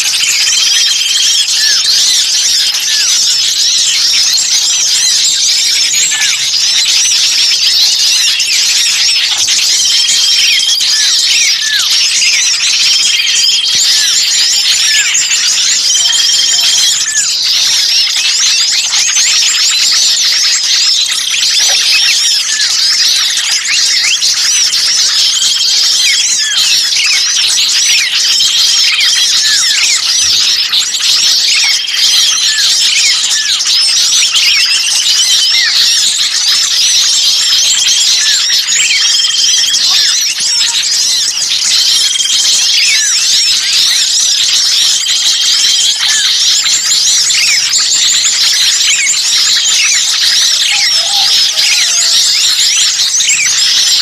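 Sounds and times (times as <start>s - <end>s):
small songbirds chattering: 0.0s - 54.0s.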